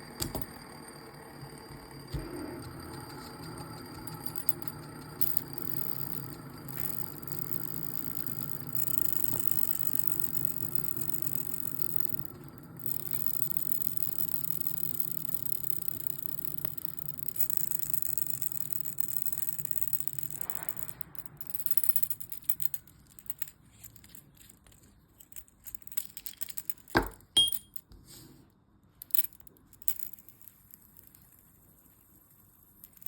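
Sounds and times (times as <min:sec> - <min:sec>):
fidget toy whirring: 0:02.1 - 0:25.3
sharp metallic clinks: 0:27.0 - 0:27.8.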